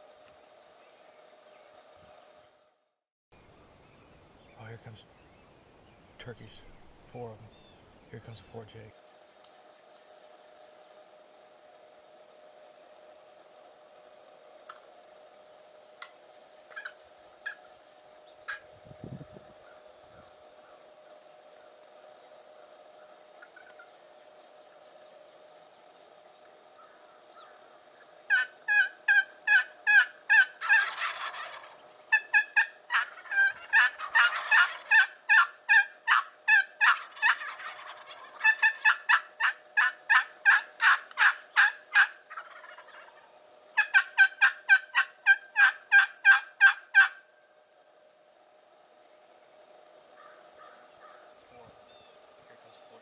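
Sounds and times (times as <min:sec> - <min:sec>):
wild turkey yelping: 0:16.7 - 0:17.7, 0:18.4 - 0:18.7, 0:19.6 - 0:21.8, 0:22.6 - 0:24.1, 0:26.8 - 0:47.3, 0:50.1 - 0:53.0.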